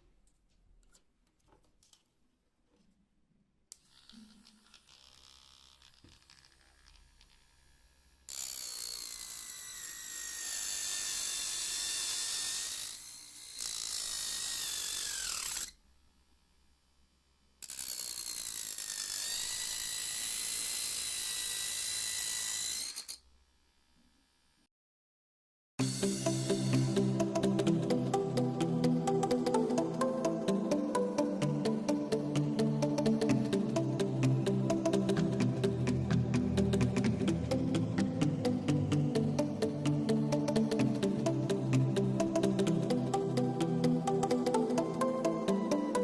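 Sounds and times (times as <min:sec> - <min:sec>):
mini drill motor whining: 0:03.8 - 0:15.8, 0:17.6 - 0:23.2.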